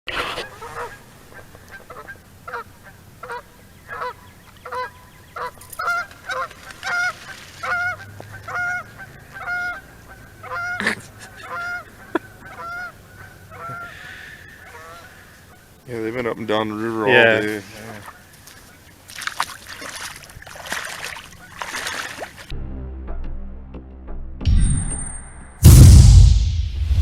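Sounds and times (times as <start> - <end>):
geese honking: 0.2 - 15.8
sharp knock: 25.6 - 27.0.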